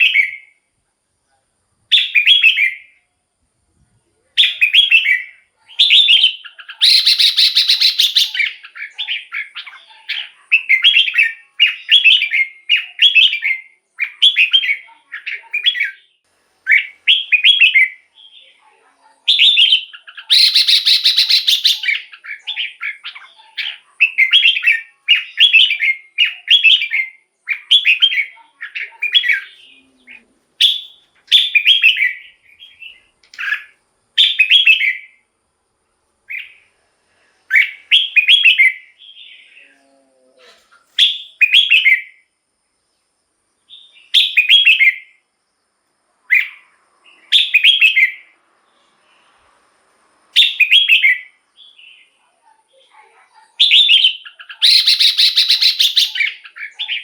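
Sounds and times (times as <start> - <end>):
bird singing whistled phrases: 1.9 - 3.0, 4.4 - 18.6, 19.3 - 35.2, 37.5 - 39.7, 41.0 - 42.2, 43.7 - 45.2, 47.3 - 48.3, 50.4 - 52.1, 53.6 - 57.0.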